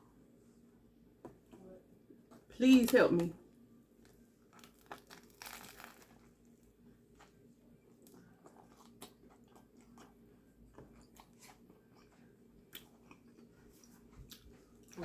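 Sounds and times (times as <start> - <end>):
person chewing food: 4.4 - 6.4, 7.1 - 15.0.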